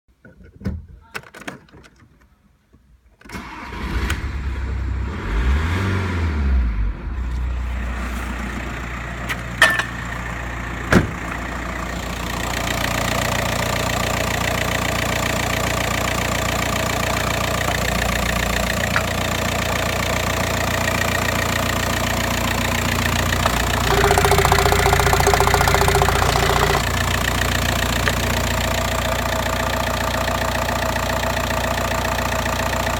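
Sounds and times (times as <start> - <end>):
diesel engine cranking and idling: 3.3 - 32.9
sharp clicks: 23.4 - 26.9
higher tone: 23.4 - 27.5.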